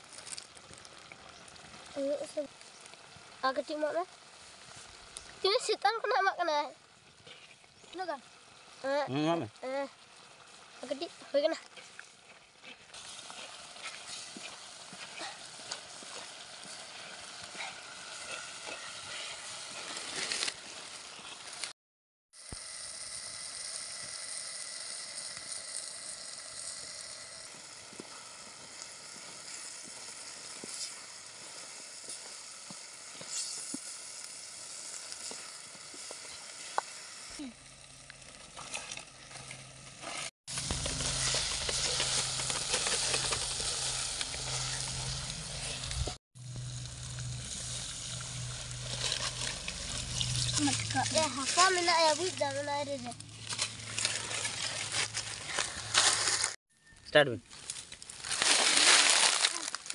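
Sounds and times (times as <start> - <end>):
chicken sizzling in a pot: 0.0 - 21.7, 22.3 - 59.9
stick knocking and scraping pot: 40.5 - 46.2.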